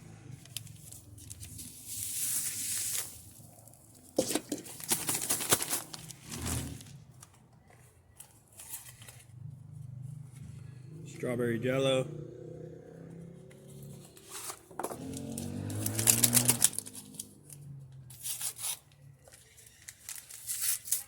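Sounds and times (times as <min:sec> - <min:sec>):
food packaging crinkling: 0:00.5 - 0:07.0, 0:14.3 - 0:17.5, 0:18.2 - 0:21.0.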